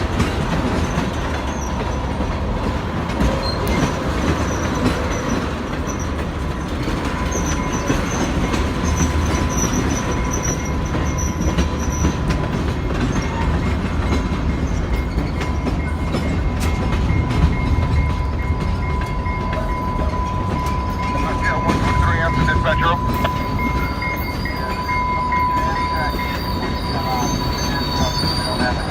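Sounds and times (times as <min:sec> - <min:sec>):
train wheels rumbling on rails: 0:00.0 - 0:28.9
thin steady squeal: 0:19.8 - 0:28.9.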